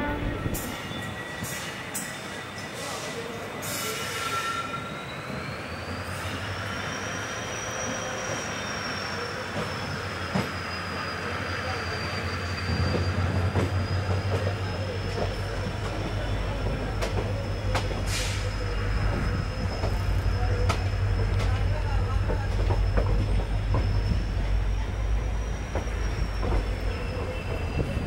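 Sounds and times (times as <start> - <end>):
train wheels squealing: 0.0 - 28.0
train rolling rumble: 9.2 - 28.0.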